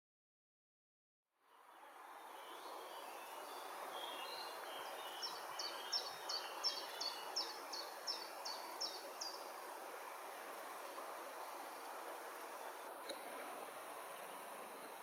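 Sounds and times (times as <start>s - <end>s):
soft bird twittering: 1.5s - 9.6s
water rushing in river cascade: 1.6s - 15.0s.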